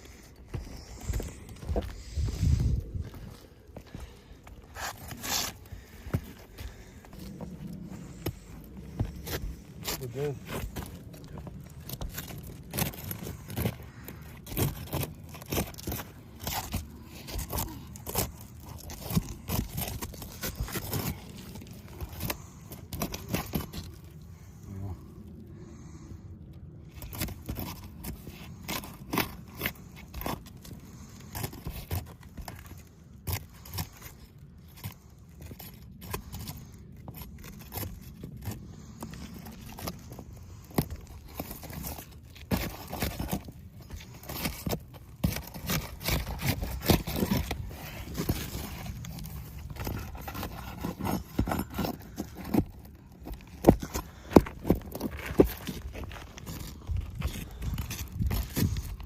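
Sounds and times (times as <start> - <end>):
scraping: 26.9 - 59.0.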